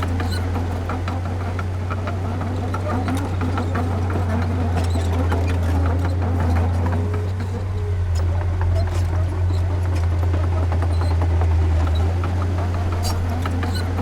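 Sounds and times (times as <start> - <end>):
diesel engine humming: 0.0 - 14.0.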